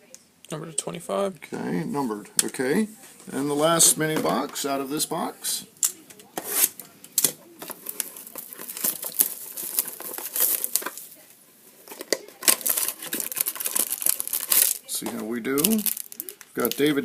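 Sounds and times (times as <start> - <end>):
cellophane wrapper crinkling and tearing: 6.5 - 11.2, 11.8 - 17.0.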